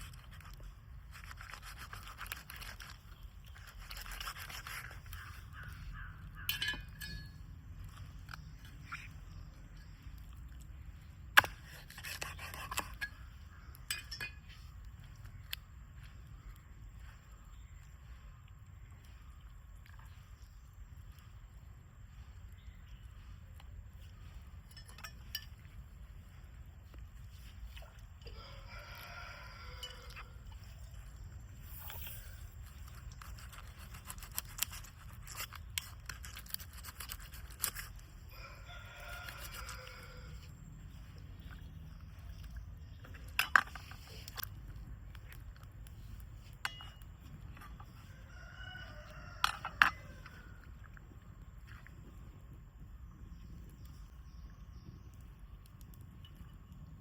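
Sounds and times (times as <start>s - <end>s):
rooster crowing: 28.2s - 30.5s, 38.3s - 40.5s, 47.9s - 50.7s.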